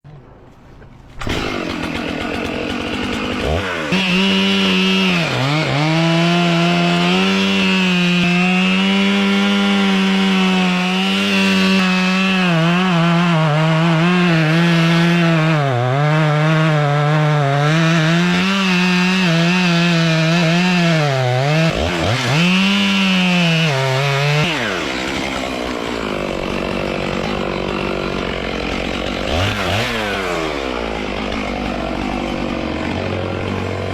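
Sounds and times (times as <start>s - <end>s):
chainsaw cutting wood: 1.1s - 33.9s.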